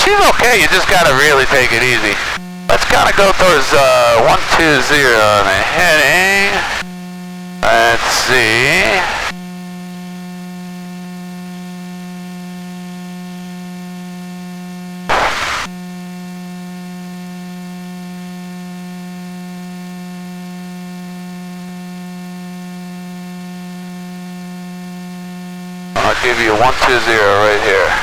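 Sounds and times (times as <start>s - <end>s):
radio static burst: 0.0s - 6.9s, 7.6s - 9.4s, 15.1s - 15.7s, 26.0s - 28.0s
steady electrical hum: 0.0s - 9.5s, 25.9s - 28.0s.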